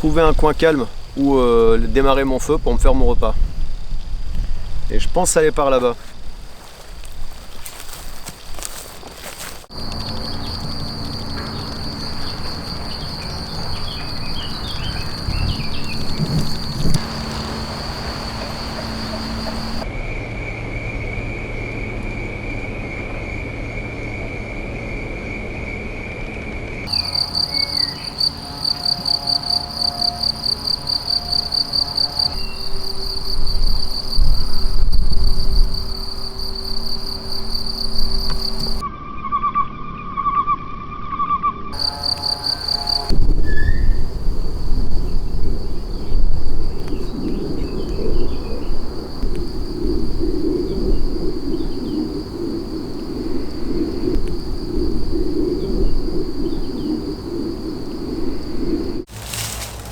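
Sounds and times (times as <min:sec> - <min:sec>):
insects chirping: 0:00.0 - 0:19.9, 0:26.8 - 0:38.8, 0:41.7 - 0:59.9
low rustling and thudding: 0:09.5 - 0:19.8.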